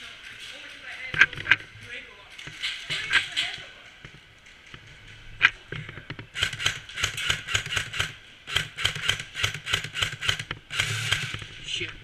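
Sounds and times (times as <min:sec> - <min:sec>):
airsoft gun rapid shots: 0:06.3 - 0:11.5.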